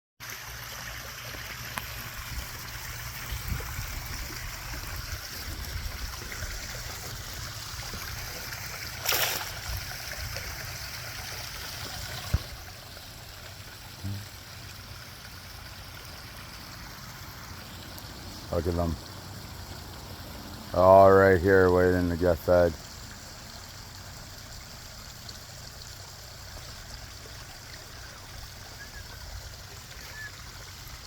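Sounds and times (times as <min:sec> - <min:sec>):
waterfall splashing: 0:00.4 - 0:12.8
loud splash: 0:08.8 - 0:10.5.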